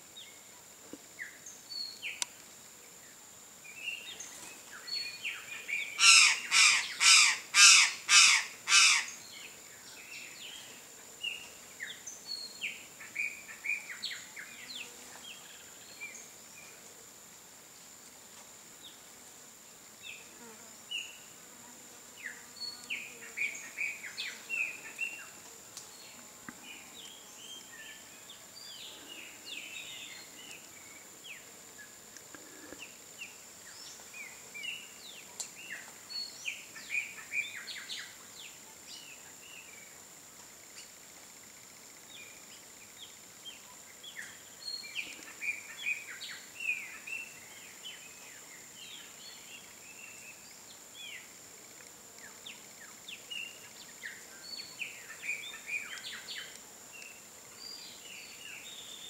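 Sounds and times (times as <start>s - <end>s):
loud harsh bird calls: 6.0s - 9.2s.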